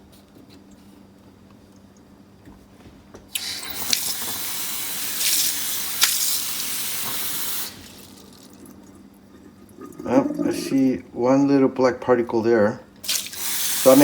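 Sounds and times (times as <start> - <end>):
faucet water running into sink: 3.4 - 8.8, 13.0 - 14.0.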